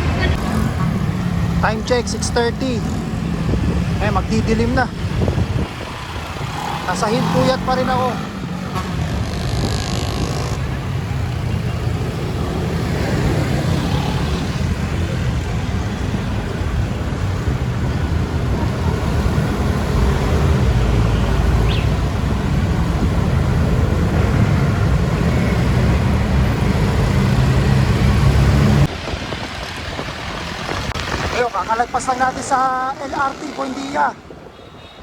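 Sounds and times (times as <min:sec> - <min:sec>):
road traffic: 0:00.0 - 0:35.0
wind buffeting microphone: 0:03.0 - 0:07.4, 0:28.7 - 0:31.7.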